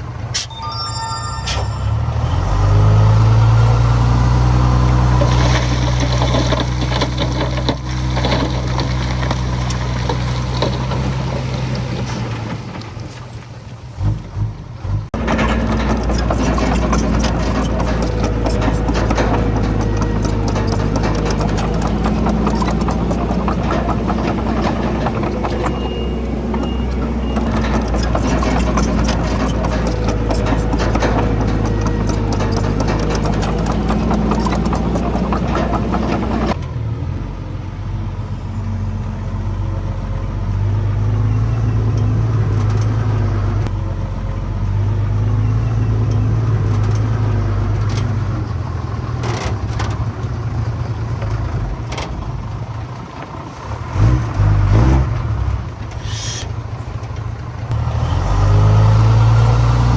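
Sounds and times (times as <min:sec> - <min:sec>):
bulldozer diesel engine: 0:00.0 - 0:59.9
steel tracks clattering on rock: 0:15.2 - 0:36.6.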